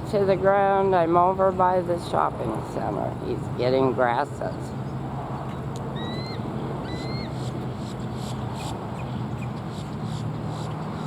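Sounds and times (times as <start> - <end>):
vehicle engine hum: 0.0 - 11.0
eagle piping calls: 6.0 - 7.5.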